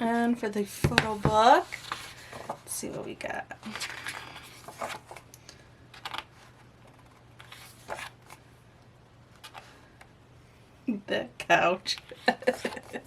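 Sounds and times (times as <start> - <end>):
faint steady hum: 0.0 - 13.0
paper pages rustling: 1.5 - 2.7, 3.6 - 5.3, 6.0 - 8.4.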